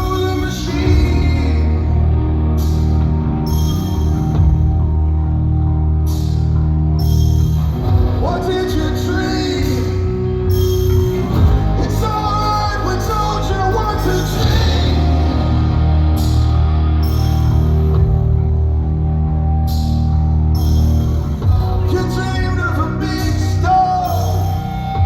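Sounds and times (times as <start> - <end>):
person singing: 0.0 - 3.0, 11.5 - 18.0
rock band playing live: 0.0 - 25.0
sustained low drone: 9.6 - 22.0.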